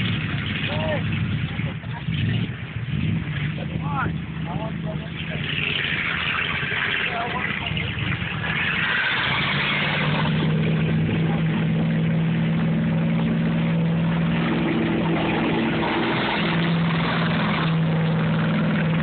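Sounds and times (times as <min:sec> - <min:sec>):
truck engine high revs: 0:00.0 - 0:19.0
water spray rushing: 0:05.0 - 0:19.0.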